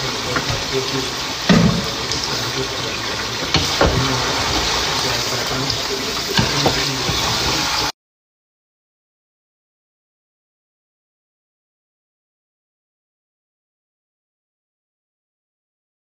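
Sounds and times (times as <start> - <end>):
food sizzling in a pot: 0.0 - 7.9
wooden spoon knocking against pot: 1.5 - 2.1.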